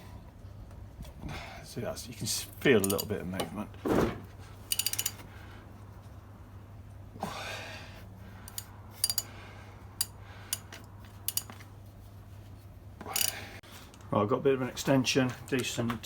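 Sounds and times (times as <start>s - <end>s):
metal clicks of socket wrench: 2.8s - 3.1s, 4.7s - 5.2s, 8.5s - 9.3s, 10.0s - 11.6s, 13.2s - 13.4s
person breathing: 7.2s - 10.7s.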